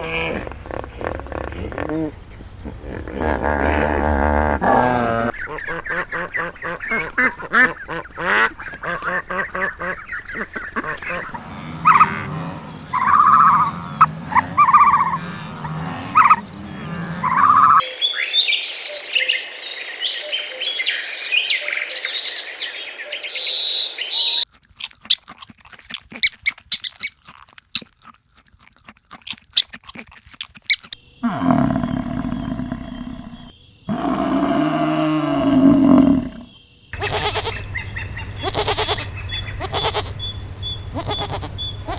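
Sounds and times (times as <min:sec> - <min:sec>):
animal calls: 0:00.0 - 0:17.9, 0:31.2 - 0:41.9
high bird chirping: 0:37.0 - 0:41.9.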